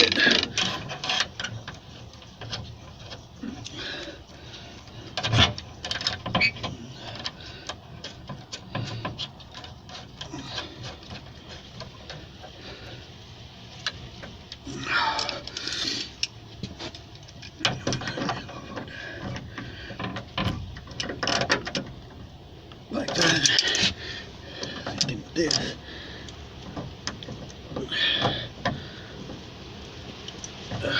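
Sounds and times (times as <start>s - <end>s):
scraping rustle: 0.0s - 30.9s
hand tools clicking and tapping metal: 13.8s - 22.0s, 22.7s - 29.4s.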